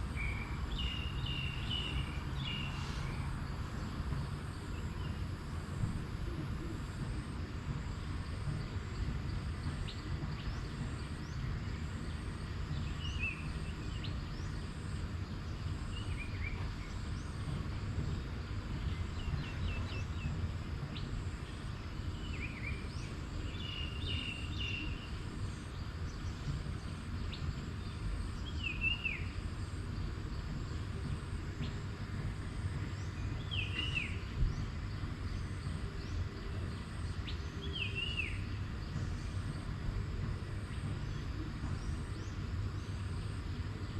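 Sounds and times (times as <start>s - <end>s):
steady low rumble: 0.0s - 43.9s
bird chirping: 0.1s - 4.0s, 32.9s - 43.6s.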